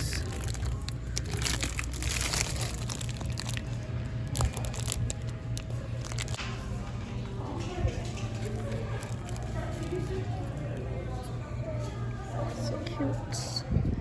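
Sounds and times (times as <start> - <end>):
crinkling and rustling: 0.0 - 6.7, 7.6 - 10.8
faint music: 0.0 - 14.0.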